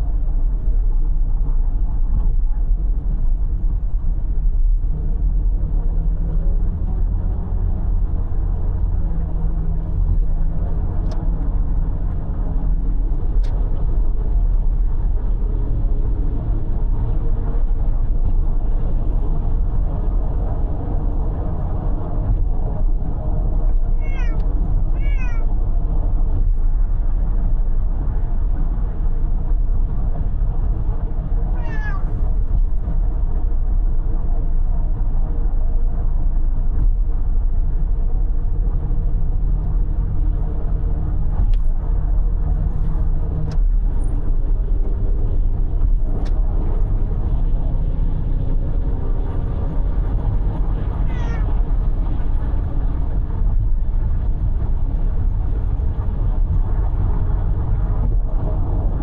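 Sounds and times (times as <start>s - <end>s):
road and engine rumble: 0.0s - 59.0s
cat meowing: 23.9s - 25.5s, 31.5s - 32.2s, 51.0s - 51.6s.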